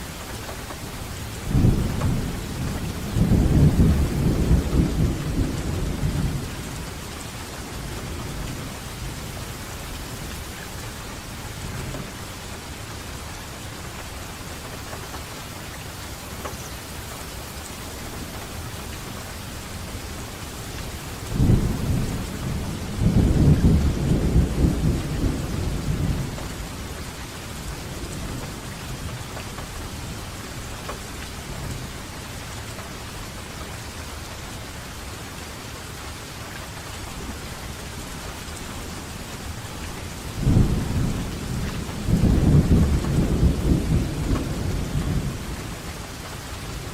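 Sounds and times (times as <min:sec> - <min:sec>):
rain falling: 0:00.0 - 0:46.9
thunder rumbling: 0:01.3 - 0:07.0, 0:20.9 - 0:27.0, 0:40.2 - 0:45.8.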